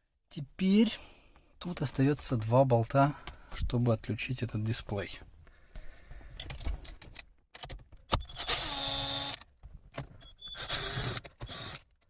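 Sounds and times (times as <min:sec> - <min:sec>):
power screwdriver running: 0:08.3 - 0:09.4, 0:10.5 - 0:11.8.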